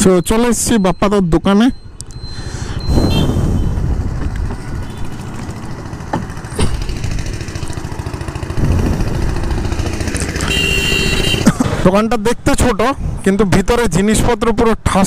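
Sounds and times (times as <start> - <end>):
motorcycle engine idling: 3.8 - 11.6.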